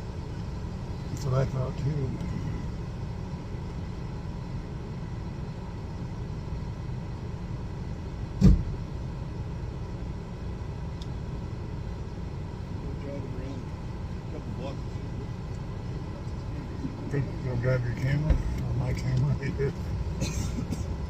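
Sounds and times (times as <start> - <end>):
car engine idling: 0.0 - 21.0
sharp thump: 8.4 - 8.8.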